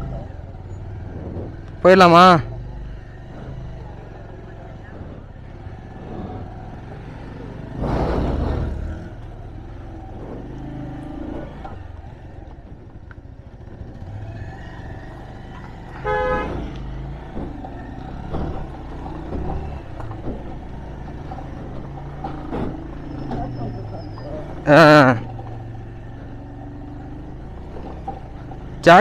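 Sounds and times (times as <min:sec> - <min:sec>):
vehicle engines rumbling: 0:00.0 - 0:29.0
vehicle horn toot: 0:15.9 - 0:16.7.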